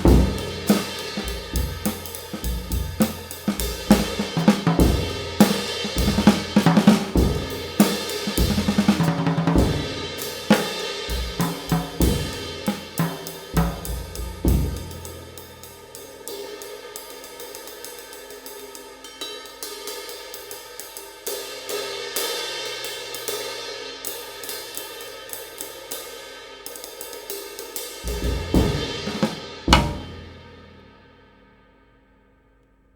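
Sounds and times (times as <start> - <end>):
drum kit groove: 0.0 - 16.0, 28.0 - 30.9.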